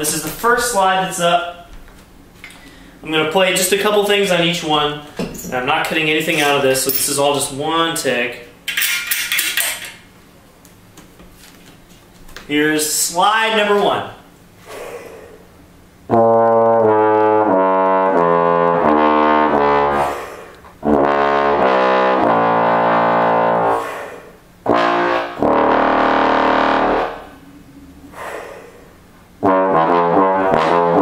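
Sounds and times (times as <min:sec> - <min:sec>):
bass trombone low notes: 0:16.1 - 0:23.9, 0:24.6 - 0:28.2, 0:28.9 - 0:31.0.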